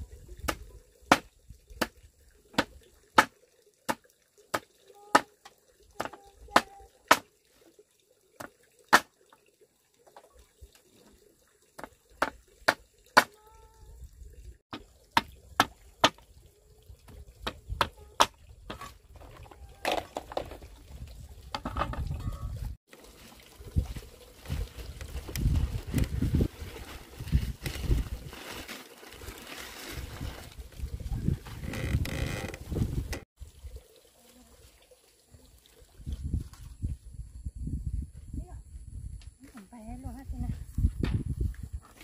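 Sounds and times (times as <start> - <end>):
rustling handling noise: 23.0 - 33.1.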